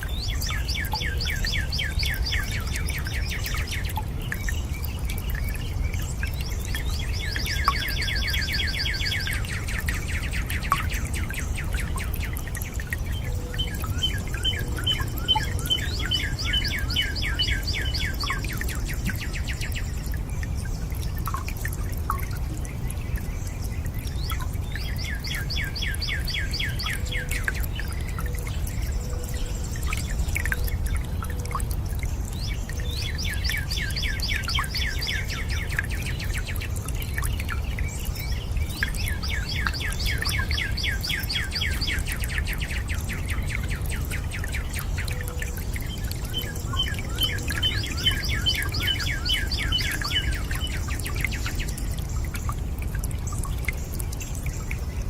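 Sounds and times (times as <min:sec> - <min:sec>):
water dripping: 0:00.0 - 0:55.0
water rushing: 0:00.0 - 0:55.0
songbird trilling: 0:46.1 - 0:51.6.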